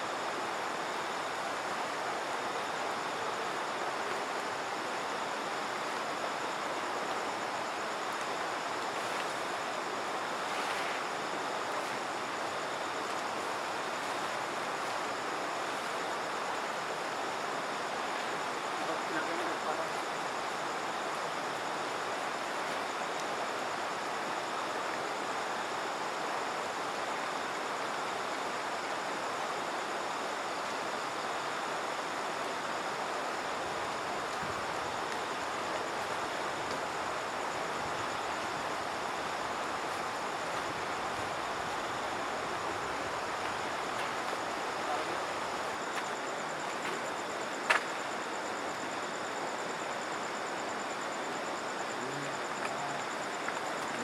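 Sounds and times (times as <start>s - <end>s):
river water rushing: 0.0s - 54.0s
insect trilling: 51.5s - 54.0s.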